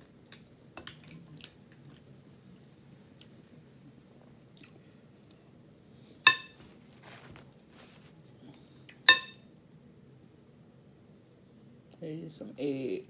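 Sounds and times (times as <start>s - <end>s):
utensil clinking against a dish: 6.3s - 6.6s, 9.1s - 9.4s.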